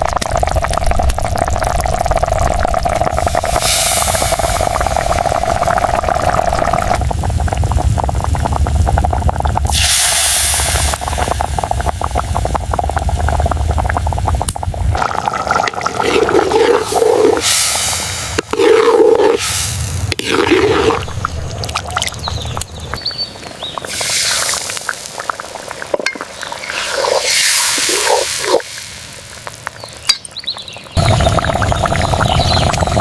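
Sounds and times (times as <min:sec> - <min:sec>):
water rushing and splashing: 0:14.9 - 0:29.7.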